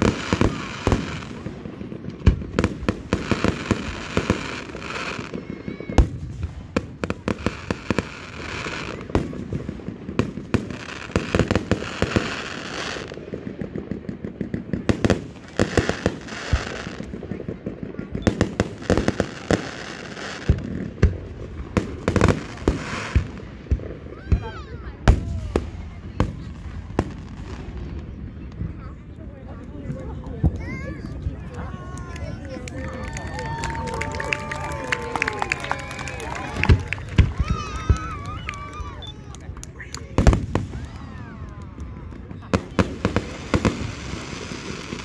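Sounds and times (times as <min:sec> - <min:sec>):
fireworks hiss: 0:00.0 - 0:17.3, 0:18.2 - 0:28.2, 0:42.5 - 0:45.0
fireworks bangs: 0:00.0 - 0:45.0.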